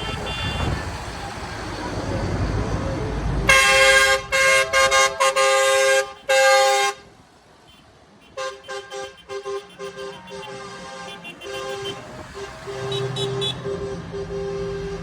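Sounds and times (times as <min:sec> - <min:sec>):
two-tone vehicle horn blasts: 0:00.0 - 0:00.9, 0:03.5 - 0:07.0, 0:07.7 - 0:15.0
low engine rumble: 0:00.0 - 0:06.2.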